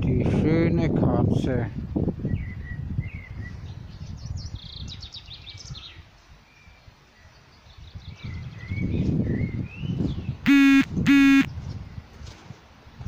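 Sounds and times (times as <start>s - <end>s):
small birds chirping: 2.2s - 12.1s.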